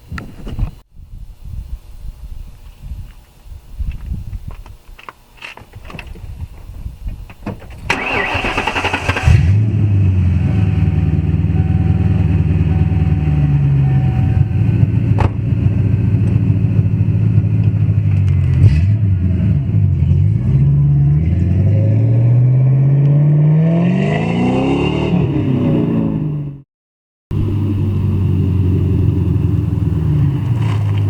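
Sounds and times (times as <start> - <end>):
car accelerating: 7.9 - 26.6
car engine running: 8.0 - 18.6.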